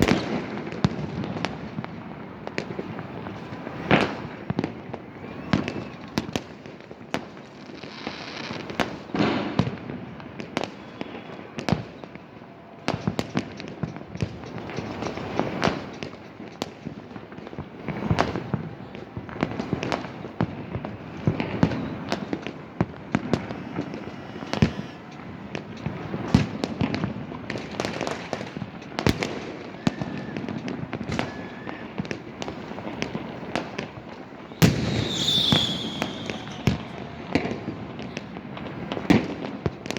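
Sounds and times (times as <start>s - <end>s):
fireworks bangs and pops: 0.0s - 39.9s
constant crackle: 5.8s - 34.6s.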